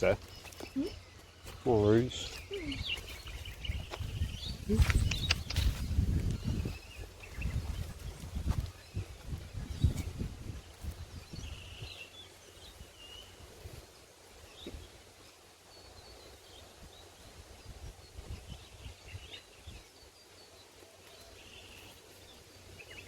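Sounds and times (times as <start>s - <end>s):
faint bird chirps: 0.0s - 10.1s
low rumble on microphone: 2.3s - 11.9s.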